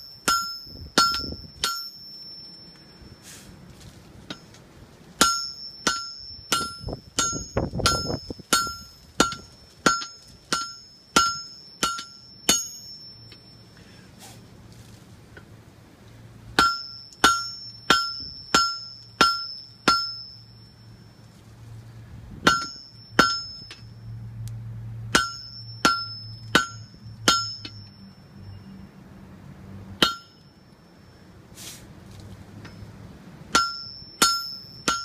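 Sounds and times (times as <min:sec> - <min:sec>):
hammer striking an anvil: 0:00.0 - 0:02.9, 0:05.2 - 0:13.6, 0:16.6 - 0:20.5, 0:22.4 - 0:24.0, 0:25.1 - 0:28.0, 0:30.0 - 0:30.5, 0:33.5 - 0:35.0.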